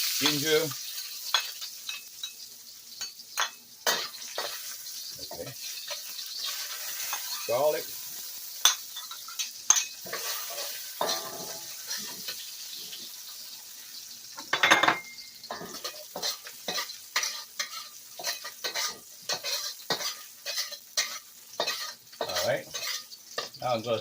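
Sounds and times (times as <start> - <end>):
garlic sizzling in hot oil: 0.0 - 24.0
spatula scraping and clicking on pan: 1.0 - 2.4, 3.0 - 4.7, 5.3 - 7.5, 8.6 - 13.1, 14.4 - 23.6.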